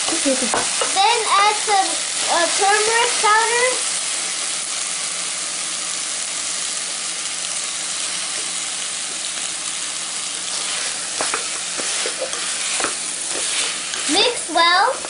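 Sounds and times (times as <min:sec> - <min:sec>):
vegetables sizzling in a pan: 0:00.0 - 0:15.0
wooden spatula scraping and knocking: 0:10.5 - 0:15.0.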